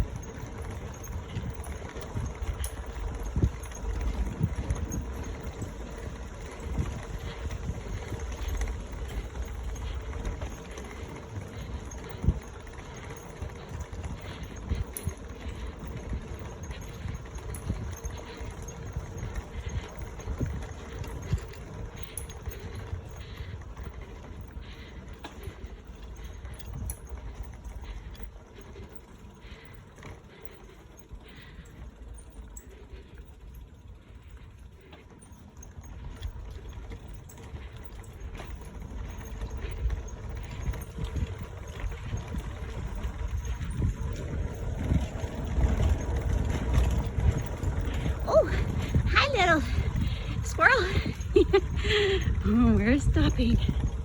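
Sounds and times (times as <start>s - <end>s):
bicycle tyres on wooden planks: 0.0s - 54.0s
wind on microphone: 39.6s - 54.0s.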